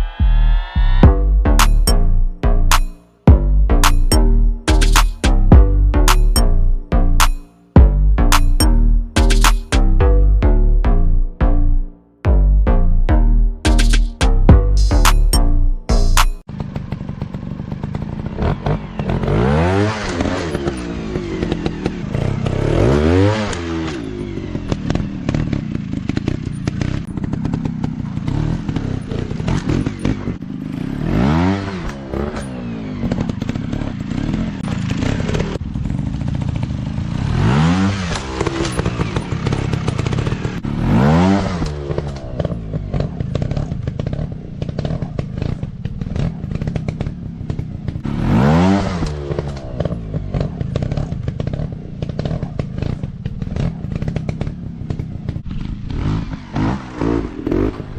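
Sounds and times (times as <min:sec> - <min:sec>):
dirt-bike engines revving: 0:16.6 - 0:57.9.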